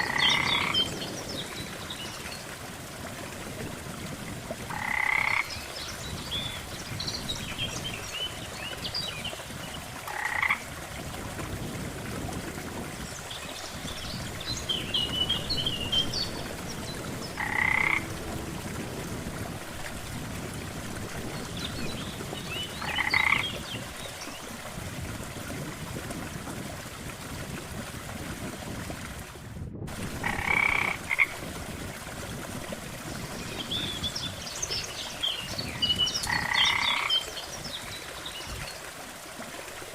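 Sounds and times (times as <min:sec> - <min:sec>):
frogs croaking: 0:00.0 - 0:01.0, 0:04.7 - 0:06.0, 0:10.0 - 0:10.7, 0:13.8 - 0:18.7, 0:22.2 - 0:24.0, 0:30.2 - 0:31.4, 0:36.1 - 0:37.5.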